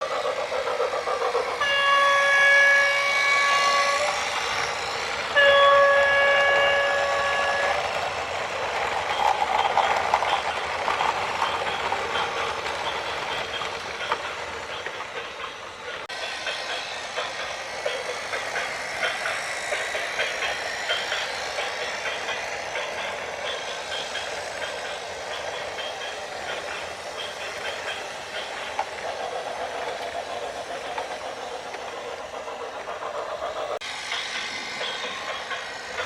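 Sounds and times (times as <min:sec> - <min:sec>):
horn blasts: 0:01.6 - 0:04.0, 0:05.4 - 0:07.9.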